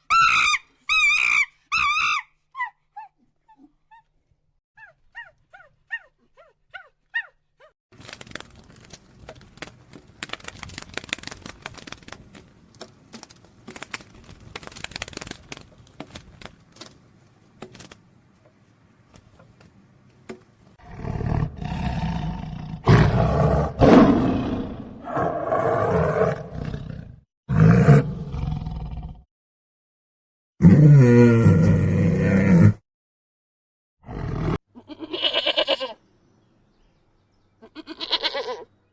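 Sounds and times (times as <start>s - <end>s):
faint crackling and clicks: 8.0s - 20.4s
large animal roaring: 20.8s - 29.2s, 30.6s - 32.8s, 34.0s - 34.6s.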